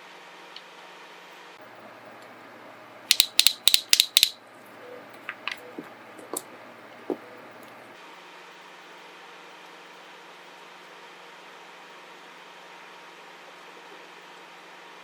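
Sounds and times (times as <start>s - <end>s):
light clicks and taps: 3.1s - 4.4s
sharp clicks in pairs: 3.1s - 4.4s.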